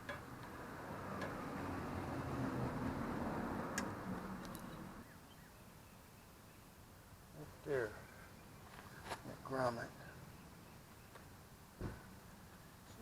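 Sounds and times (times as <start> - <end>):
vehicle passing by: 0.3 - 5.0.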